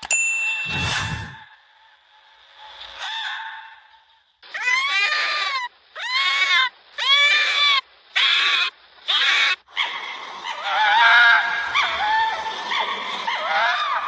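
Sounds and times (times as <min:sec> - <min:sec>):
fox wavering call: 0:02.7 - 0:14.0
fox barking: 0:02.8 - 0:14.0.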